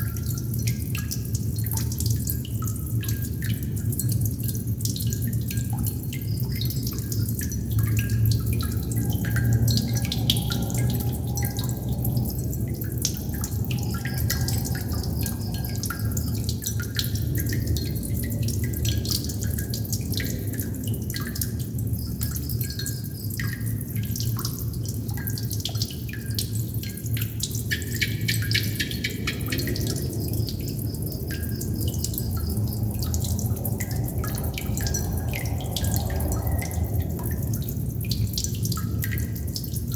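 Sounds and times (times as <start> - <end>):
water droplets dripping: 0.0 - 39.9
steady low hum: 7.2 - 20.0.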